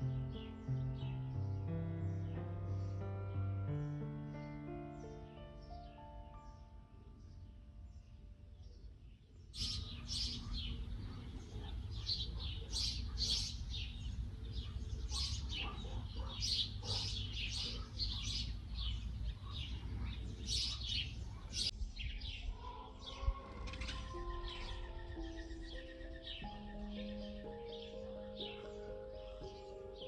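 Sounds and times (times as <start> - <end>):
soft piano notes: 0.0 - 9.0, 23.4 - 30.0
songbirds chirping: 0.0 - 30.0.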